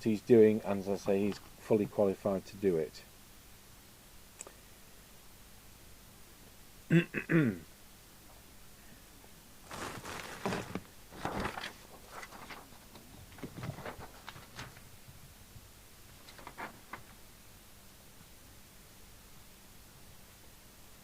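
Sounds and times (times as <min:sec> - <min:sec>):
cables rustling: 0:09.6 - 0:15.0.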